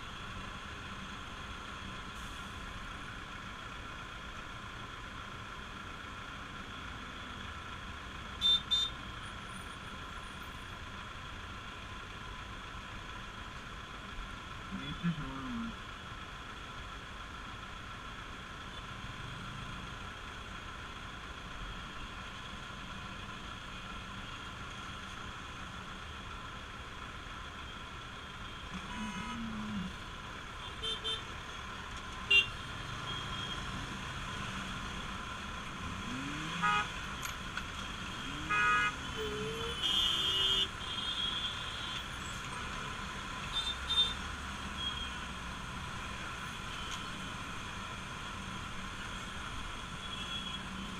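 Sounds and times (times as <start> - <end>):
road noise: 0.0 - 50.9
vehicle horns tooting: 32.3 - 33.6, 36.5 - 37.0, 38.4 - 42.1.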